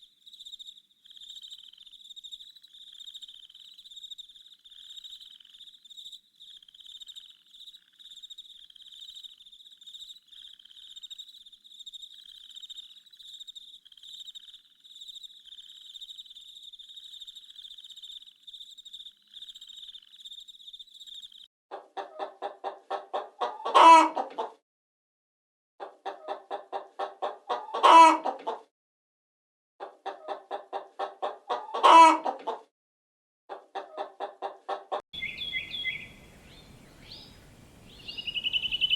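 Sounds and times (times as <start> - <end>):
crickets chirping: 0.0 - 21.5, 35.2 - 38.9
hen cackling: 21.7 - 24.6, 25.8 - 28.6, 29.8 - 32.6, 33.5 - 38.9.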